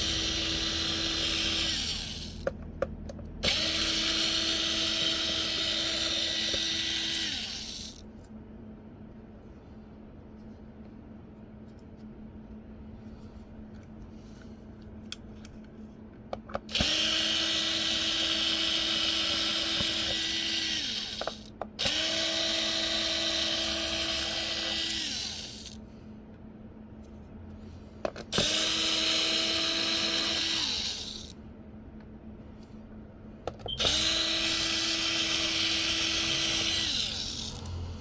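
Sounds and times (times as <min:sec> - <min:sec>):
power tool motor whining: 0:00.0 - 0:02.5, 0:03.4 - 0:08.0, 0:16.7 - 0:25.8, 0:28.3 - 0:31.3, 0:33.7 - 0:38.0.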